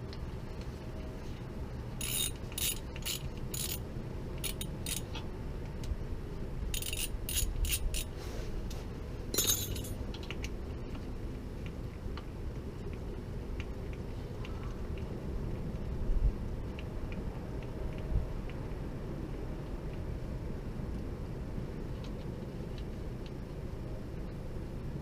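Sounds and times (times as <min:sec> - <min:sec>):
ratchet wrench clicking: 0:02.0 - 0:03.8, 0:04.4 - 0:05.1, 0:06.7 - 0:08.1.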